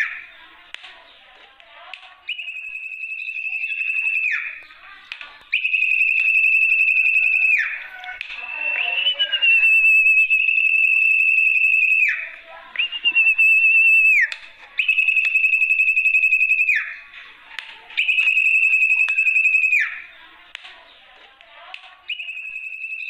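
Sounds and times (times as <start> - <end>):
high whistled bird call: 2.3 - 4.8, 5.5 - 17.1, 17.9 - 20.3, 22.1 - 23.0.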